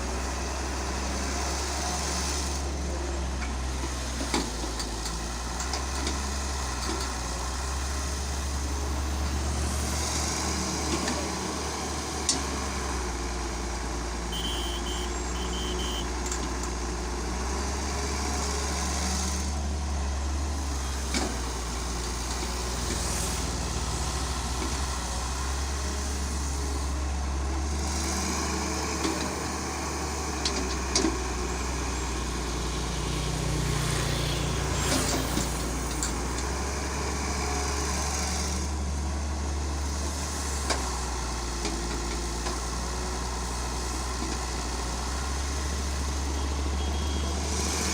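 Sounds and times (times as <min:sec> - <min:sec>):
heavy machine engine humming: 0:00.0 - 0:47.9
high beeping: 0:14.3 - 0:16.0.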